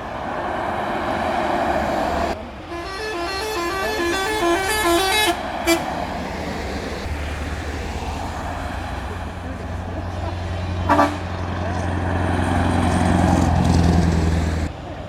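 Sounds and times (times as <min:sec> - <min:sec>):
truck engine and road noise: 0:00.0 - 0:15.0
musical horn playing a tune: 0:02.6 - 0:06.0, 0:10.8 - 0:11.4
short horn toot: 0:02.7 - 0:05.9, 0:10.8 - 0:11.5.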